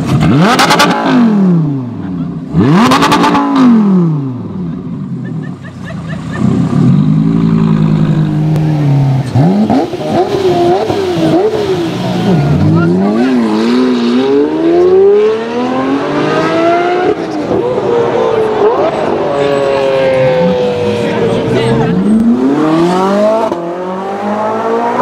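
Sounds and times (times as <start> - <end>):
car engine revving and accelerating: 0.0 - 5.2, 6.2 - 25.0
car engine pitch falling: 6.0 - 25.0.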